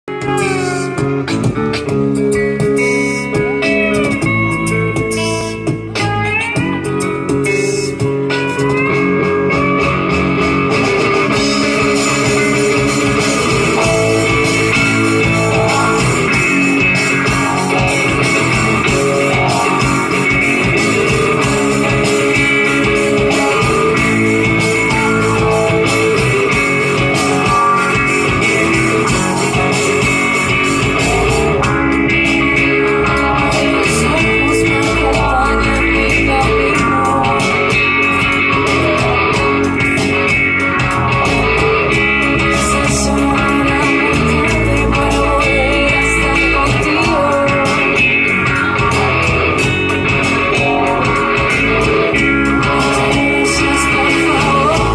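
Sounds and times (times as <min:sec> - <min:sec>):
rock band playing: 0:00.0 - 0:54.9
gliding guitar notes: 0:00.1 - 0:54.9.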